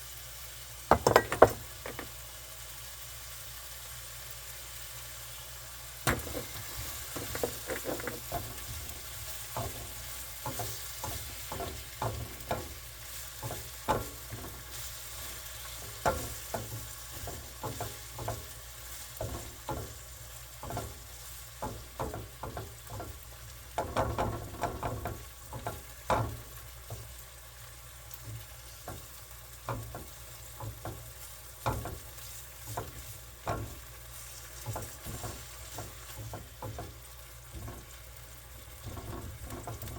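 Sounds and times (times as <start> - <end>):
meat sizzling in a pan: 0.0 - 39.9
utensil scraping pan: 6.1 - 23.2, 29.7 - 39.9.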